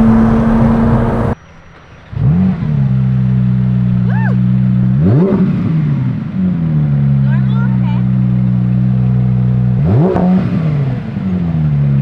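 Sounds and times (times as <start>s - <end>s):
sports car engine revving: 0.0s - 1.4s, 4.6s - 7.3s, 8.1s - 11.9s.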